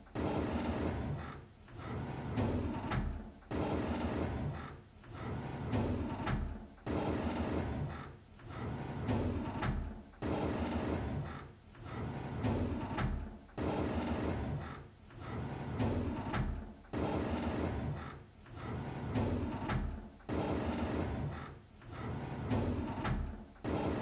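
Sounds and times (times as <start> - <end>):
drawer sliding open: 18.6 - 19.9, 20.5 - 24.0.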